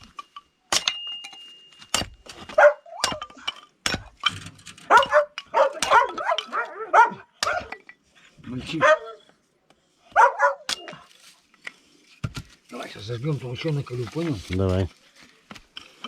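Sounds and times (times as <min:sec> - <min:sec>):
sharp clinks and knocks: 0:00.0 - 0:06.6
dog barking: 0:02.5 - 0:03.0, 0:04.9 - 0:07.7, 0:08.7 - 0:09.2, 0:10.1 - 0:10.7.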